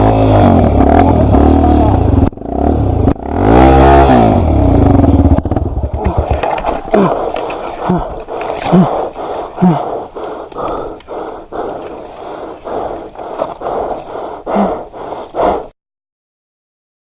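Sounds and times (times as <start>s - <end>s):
motorcycle rushing noise: 0.0s - 9.5s
knocks and jolts: 5.3s - 8.9s.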